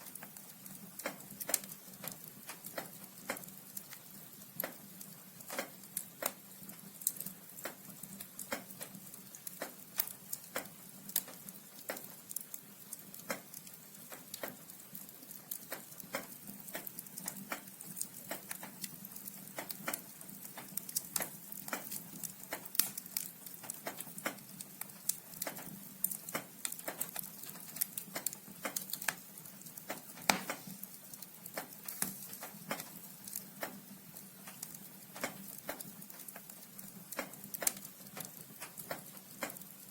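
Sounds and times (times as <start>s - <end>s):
logs crackling and popping: 0.0s - 39.9s.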